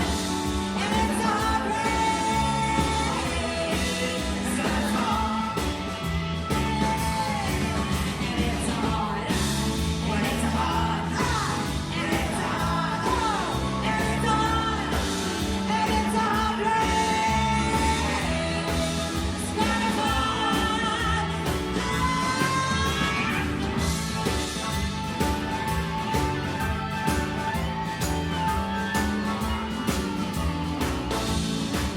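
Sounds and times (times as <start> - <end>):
person singing: 0.0 - 24.4
live rock band playing: 0.0 - 31.9.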